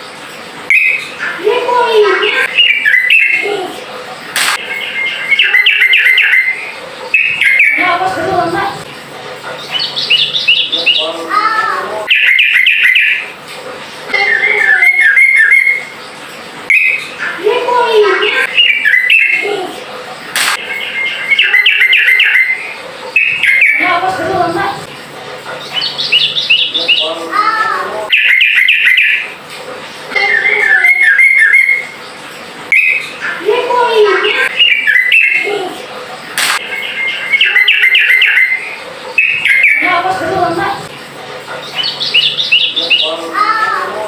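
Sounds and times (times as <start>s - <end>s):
bird chattering song: 0.6s - 44.0s
burst of noise: 4.3s - 4.7s, 20.3s - 20.6s, 36.3s - 36.6s.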